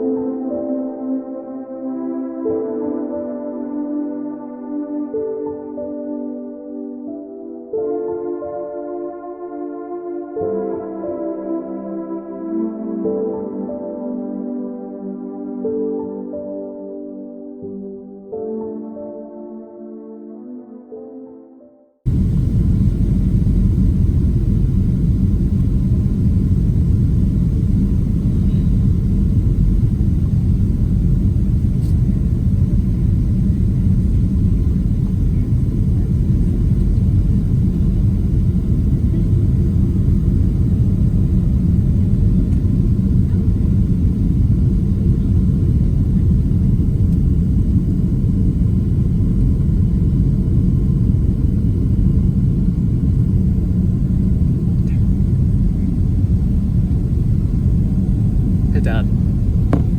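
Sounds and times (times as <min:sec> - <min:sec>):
airplane cabin engine rumble: 0:22.1 - 0:59.9.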